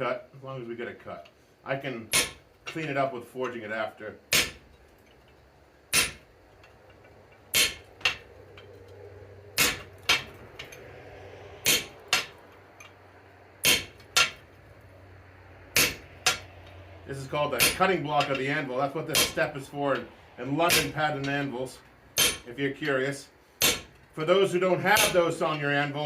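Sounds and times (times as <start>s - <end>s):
faint steady hum: 0.0s - 26.0s
hammer blows on anvil: 2.1s - 2.4s, 5.9s - 6.2s, 7.5s - 8.3s, 9.6s - 10.8s, 11.6s - 13.0s, 13.6s - 14.4s, 15.7s - 16.5s, 17.6s - 18.5s, 19.1s - 20.1s, 20.7s - 21.4s, 22.2s - 22.5s, 25.0s - 25.2s.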